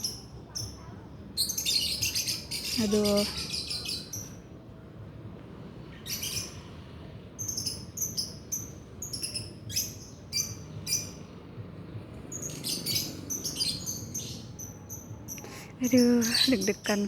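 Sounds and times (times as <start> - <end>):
lovebirds chirping: 0.0 - 4.5, 7.4 - 11.4, 12.2 - 17.0.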